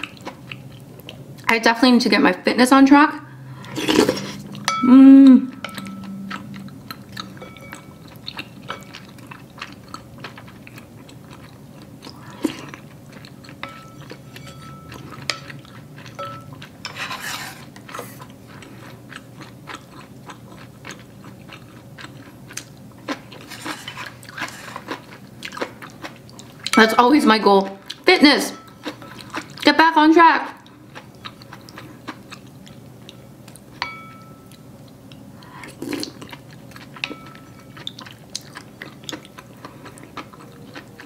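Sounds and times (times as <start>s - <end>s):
person humming mm: 3.7s - 6.8s
chewing: 5.5s - 26.8s, 28.7s - 29.7s, 30.5s - 33.8s, 34.4s - 41.0s
spoon scraping ceramic bowl: 13.6s - 15.5s, 16.1s - 18.0s.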